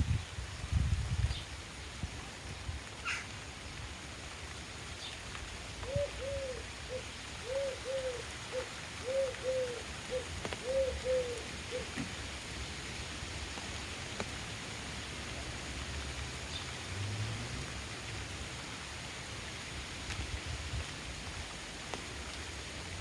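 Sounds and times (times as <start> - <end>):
pigeon cooing: 5.8 - 12.0.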